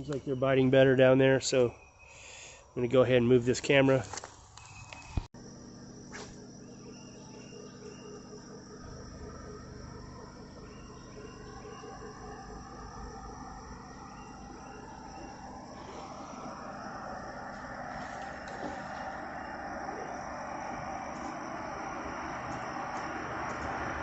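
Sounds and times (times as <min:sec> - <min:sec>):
insects chirping: 0:00.0 - 0:24.0
vehicle approaching: 0:07.0 - 0:24.0.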